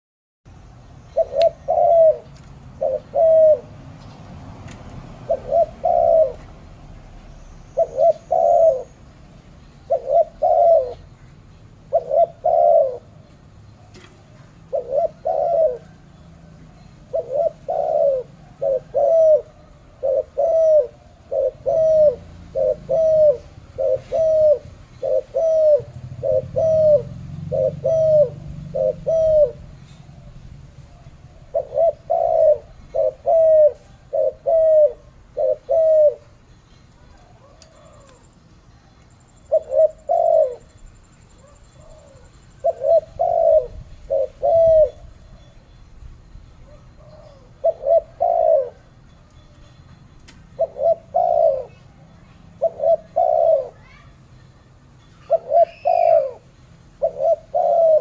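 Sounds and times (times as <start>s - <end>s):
dove cooing: 1.1s - 3.8s, 4.9s - 45.8s, 46.6s - 49.0s, 50.6s - 54.2s, 55.2s - 58.0s
faint high bird chirps: 33.7s - 57.8s.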